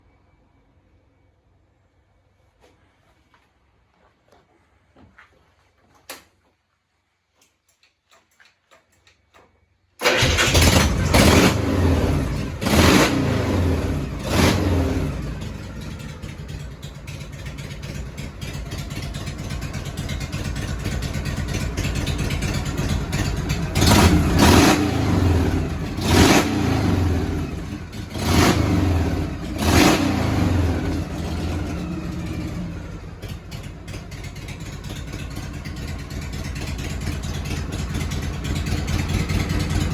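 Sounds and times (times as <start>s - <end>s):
motorcycle engine revving and idling: 10.0s - 39.9s.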